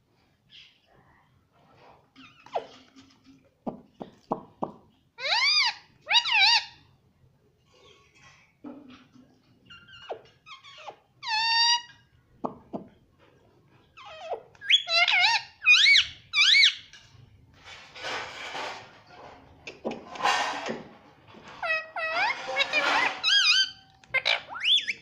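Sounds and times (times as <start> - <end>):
parakeet squawking: 5.2 - 6.8, 14.0 - 16.8, 21.6 - 25.0.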